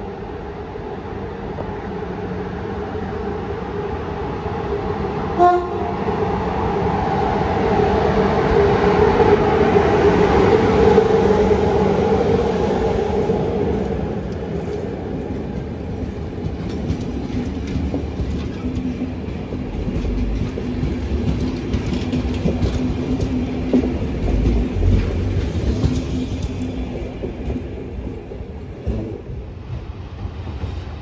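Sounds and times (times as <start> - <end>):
train rumble and motor hum: 4.8 - 31.0
locomotive horn toot: 5.4 - 5.9.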